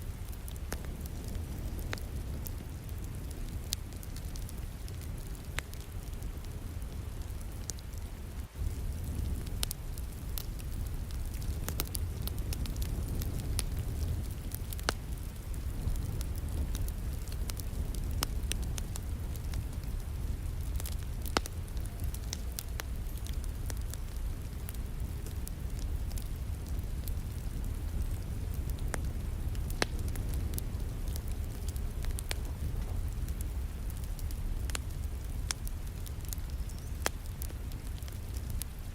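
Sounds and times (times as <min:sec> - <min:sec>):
wood fire crackling and popping: 0:00.0 - 0:38.9
low rumble: 0:08.6 - 0:36.2.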